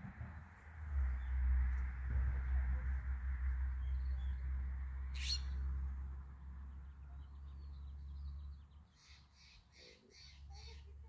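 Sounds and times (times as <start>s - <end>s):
low rumble: 0.0s - 8.5s
harsh repeated bird notes: 5.1s - 5.6s
wild birds calling: 5.1s - 5.7s, 7.3s - 11.0s.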